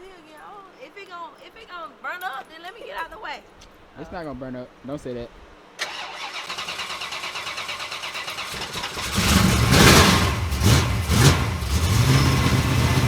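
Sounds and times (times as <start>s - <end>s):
engine starter cranking: 5.8s - 13.0s
car engine revving: 6.2s - 13.0s.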